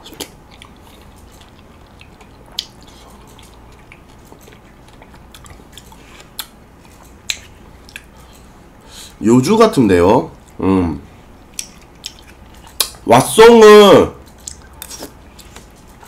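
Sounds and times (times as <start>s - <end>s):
chewing with wet mouth clicks: 0.0s - 8.5s, 11.5s - 13.0s, 14.2s - 16.0s.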